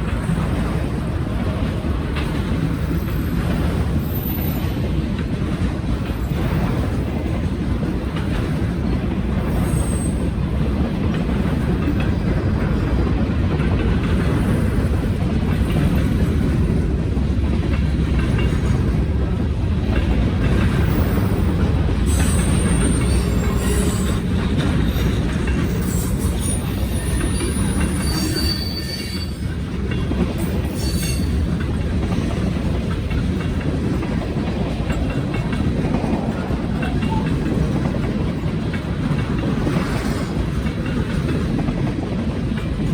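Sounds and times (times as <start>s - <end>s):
freight train cars rumbling past: 0.0s - 42.9s
wheels clicking over rail joints: 0.0s - 42.9s
high wheel squeals: 22.1s - 29.6s, 30.4s - 31.5s.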